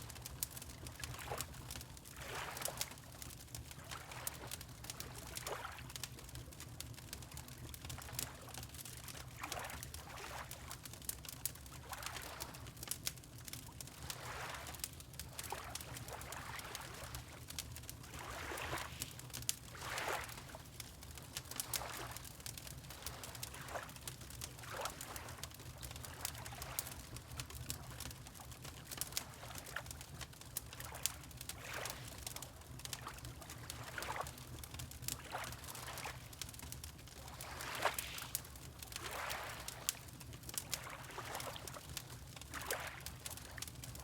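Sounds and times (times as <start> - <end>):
wood fire crackling and popping: 0.0 - 5.3, 5.9 - 9.9, 12.7 - 13.6, 17.0 - 18.0, 20.4 - 37.4, 38.2 - 40.8
water lapping: 2.1 - 3.0, 9.4 - 10.7, 14.0 - 14.8, 15.4 - 28.4, 29.3 - 43.6.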